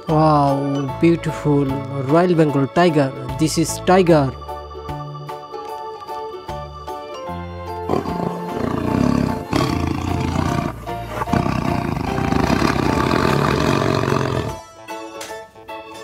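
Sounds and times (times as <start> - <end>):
background music: 0.0 - 16.0
tiger roaring and growling: 7.8 - 14.6.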